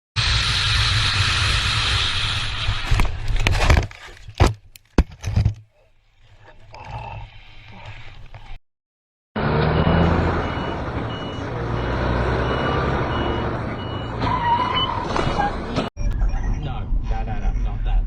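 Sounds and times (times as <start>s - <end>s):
road rumble: 9.4s - 18.0s.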